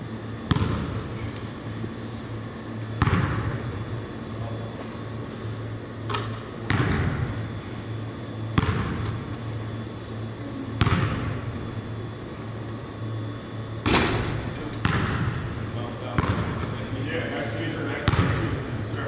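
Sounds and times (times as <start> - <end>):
steady low hum: 9.3 - 19.0
basketballs hitting gym floor: 13.9 - 17.0, 18.1 - 18.6.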